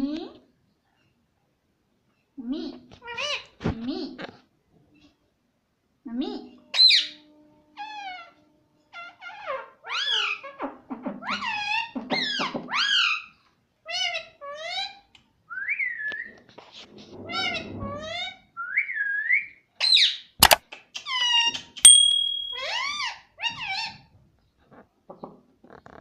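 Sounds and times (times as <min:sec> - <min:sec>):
sharp click: 0:21.9 - 0:22.6.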